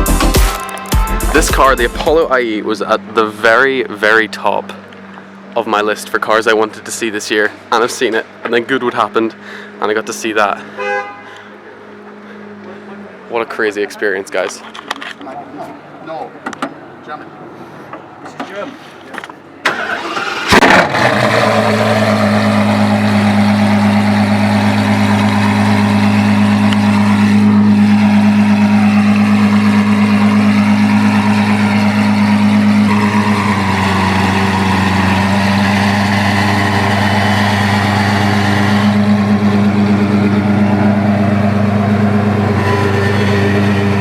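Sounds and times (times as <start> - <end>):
car engine idling loudly: 1.2 - 5.4, 20.9 - 44.0.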